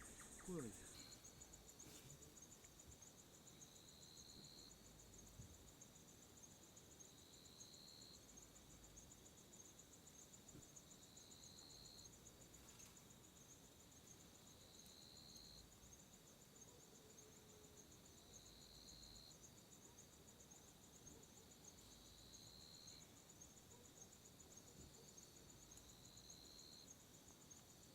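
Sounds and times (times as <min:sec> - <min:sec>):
insects trilling: 0:00.0 - 0:05.8
lower insect call: 0:00.0 - 0:27.9.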